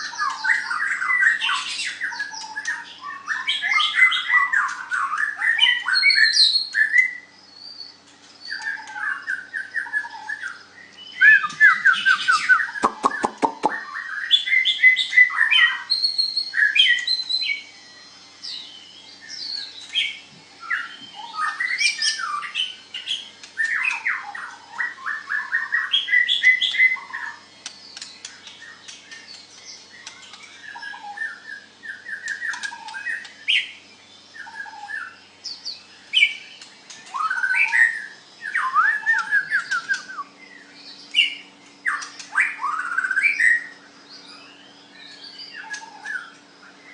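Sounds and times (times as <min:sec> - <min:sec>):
bird singing whistled phrases: 0:00.0 - 0:46.9.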